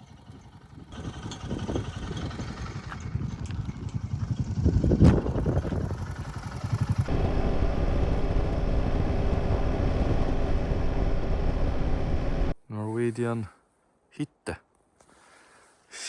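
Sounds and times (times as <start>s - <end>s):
motorcycle engine running: 0.0s - 12.5s.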